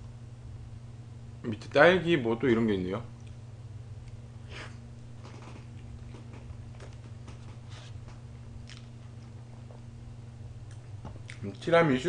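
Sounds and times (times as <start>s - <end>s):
steady low hum: 0.0s - 12.0s
chewing soft cake: 4.0s - 11.7s
wet mouth smacks and clicks: 8.6s - 9.0s.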